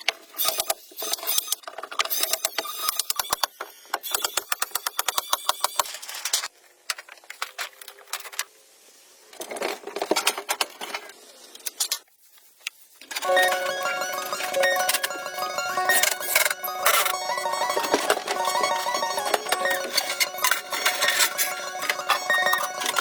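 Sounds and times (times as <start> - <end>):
plucked-string music: 13.2 - 23.0.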